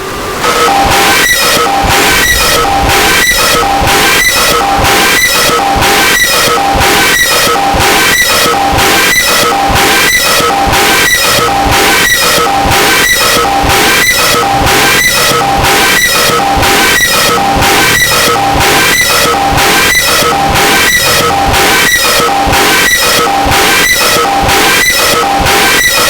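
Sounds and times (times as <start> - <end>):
loud music with steady beat: 1.7 - 26.0.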